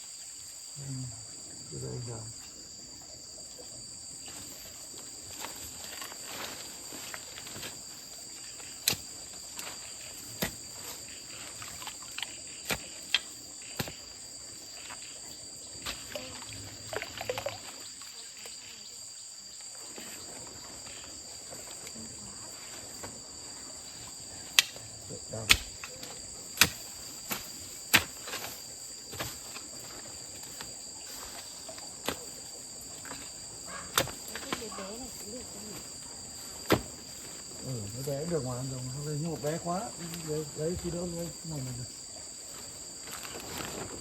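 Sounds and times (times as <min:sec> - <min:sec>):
high-pitched insect chorus: 0:00.0 - 0:44.0
tool chopping into soil: 0:08.8 - 0:14.1, 0:25.4 - 0:29.7, 0:32.0 - 0:32.3, 0:33.9 - 0:34.7, 0:36.6 - 0:37.0.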